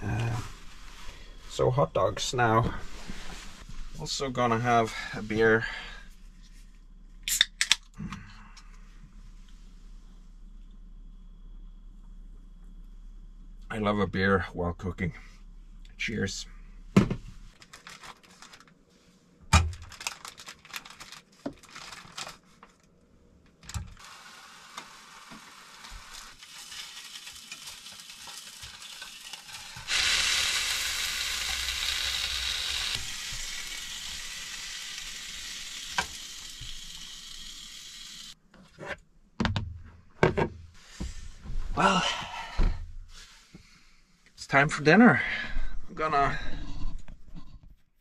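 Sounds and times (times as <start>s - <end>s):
hot dogs sizzling in a pan: 24.0s - 38.4s.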